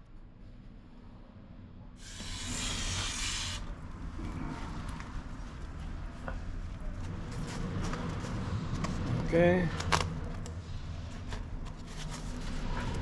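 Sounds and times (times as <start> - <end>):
loud hiss: 2.0 - 3.7.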